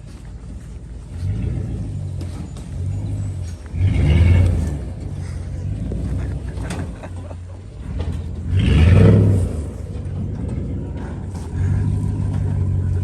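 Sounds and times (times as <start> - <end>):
truck engine rumbling and revving: 0.0 - 13.0.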